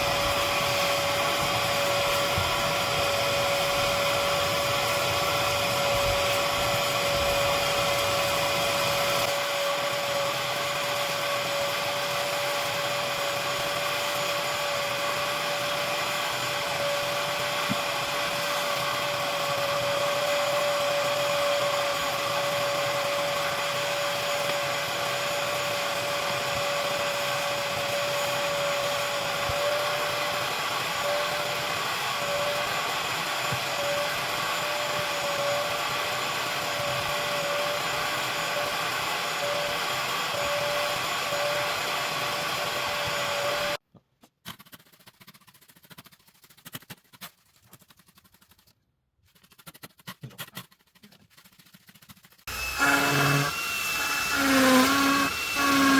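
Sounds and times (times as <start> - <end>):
vacuum motor whining: 0.0 - 43.8, 52.5 - 55.9.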